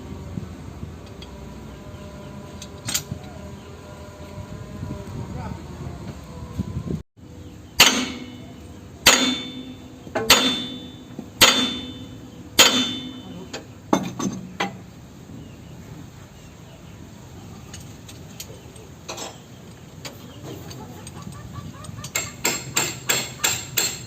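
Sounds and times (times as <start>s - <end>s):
hammer striking metal: 7.8s - 14.8s, 22.1s - 24.0s.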